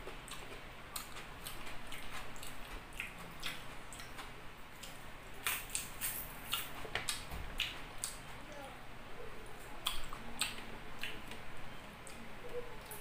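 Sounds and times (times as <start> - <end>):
person chewing food: 0.0 - 8.3, 9.5 - 13.0
wet mouth clicks and smacks: 1.0 - 8.2, 9.8 - 11.4.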